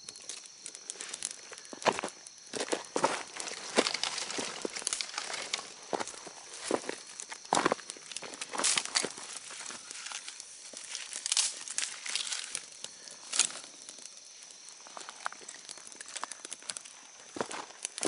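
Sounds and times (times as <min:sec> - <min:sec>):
rustling and crinkling: 0:00.3 - 0:18.0.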